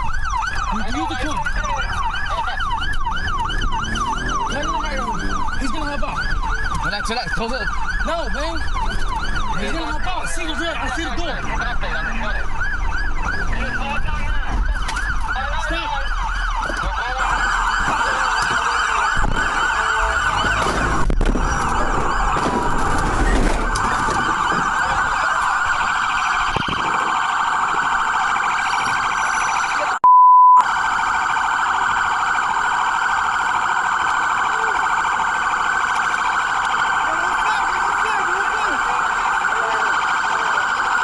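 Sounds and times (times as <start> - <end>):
engine and road rumble: 0.0 - 30.0, 30.6 - 41.0
police siren warbling: 0.0 - 41.0
steady single-pitch beep: 30.0 - 30.6.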